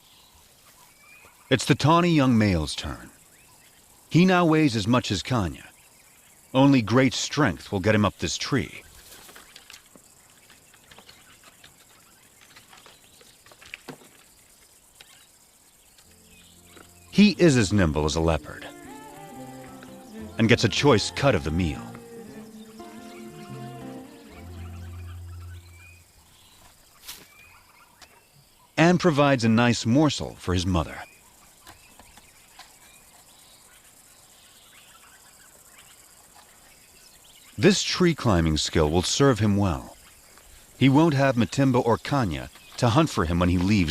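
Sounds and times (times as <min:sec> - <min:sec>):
distant bird calls: 0:02.8 - 0:28.8, 0:40.0 - 0:43.9.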